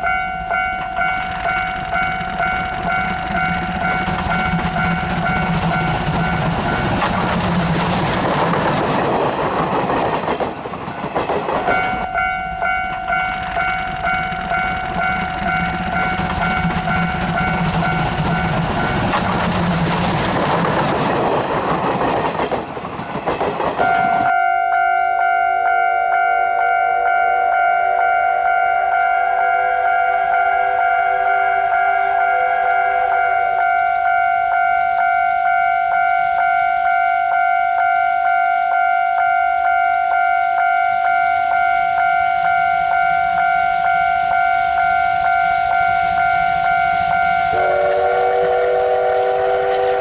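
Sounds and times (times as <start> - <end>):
ringing crossing alarm: 0.0 - 8.4, 11.7 - 20.4, 23.8 - 50.0
train rumble and wheel clatter: 0.0 - 50.0
clear ringing tone: 23.8 - 47.6.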